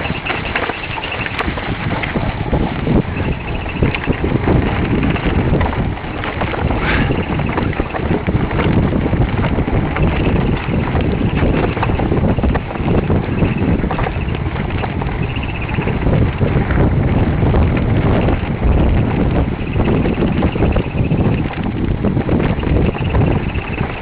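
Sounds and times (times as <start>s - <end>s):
bike rattling over rough ground: 0.0s - 24.0s
wind rushing over microphone: 0.0s - 24.0s.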